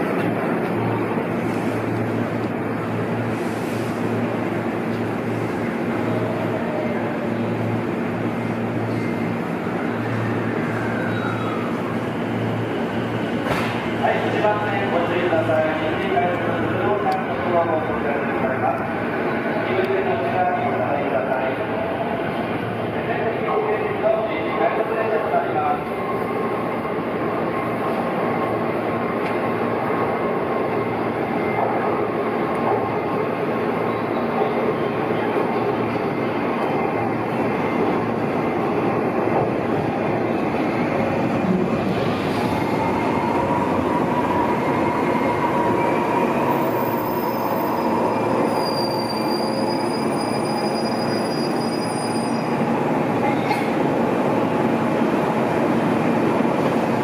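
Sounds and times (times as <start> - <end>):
train wheels rumbling on rail: 0.0 - 23.0, 24.8 - 57.0
high wheel squeal: 46.5 - 52.6.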